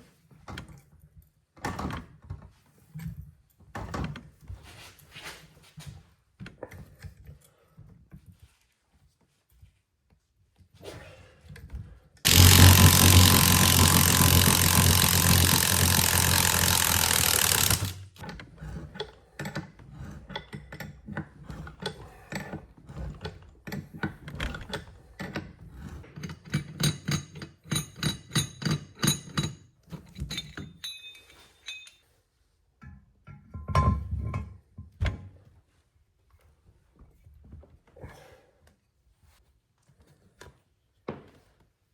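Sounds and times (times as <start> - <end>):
power tool running: 12.3 - 18.2
clicks and metallic clinks: 30.2 - 32.0.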